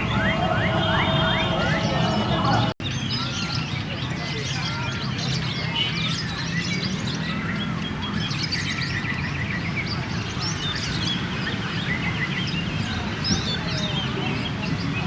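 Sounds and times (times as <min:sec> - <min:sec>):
crowd murmur: 0:00.0 - 0:02.8.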